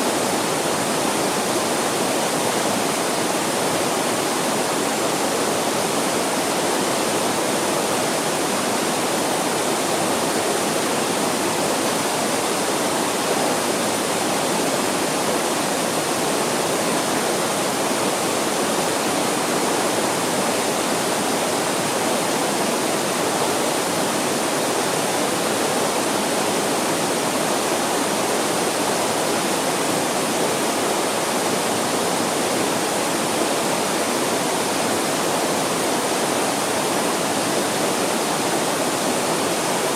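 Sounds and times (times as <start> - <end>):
mountain stream flowing fast: 0.0 - 39.9.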